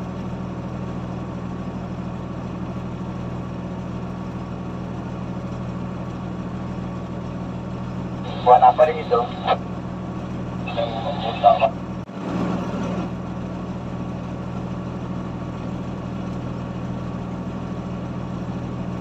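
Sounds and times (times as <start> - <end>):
heavy machine engine humming: 7.8 - 19.0.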